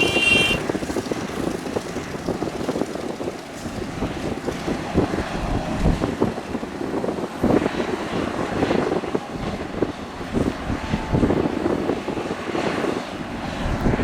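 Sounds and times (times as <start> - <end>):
excavator diesel engine running: 0.0 - 4.3.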